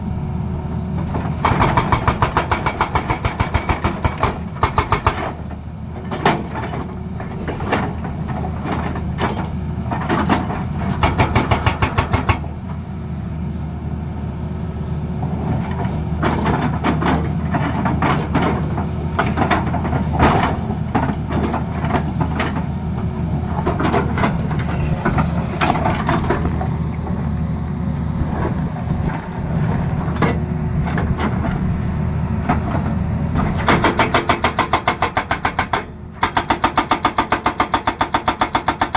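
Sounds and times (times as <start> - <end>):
diesel engine running: 0.0 - 38.9
hydraulic breaker hammering: 1.4 - 5.4, 33.5 - 38.9.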